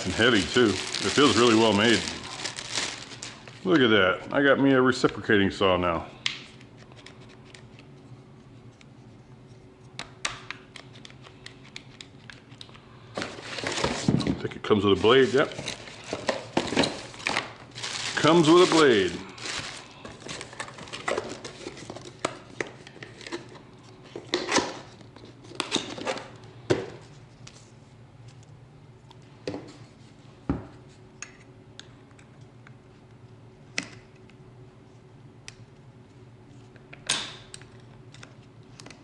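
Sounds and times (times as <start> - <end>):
packaging rustling: 0.0 - 3.8, 13.2 - 14.2, 14.9 - 22.3
faint steady hum: 0.0 - 39.0.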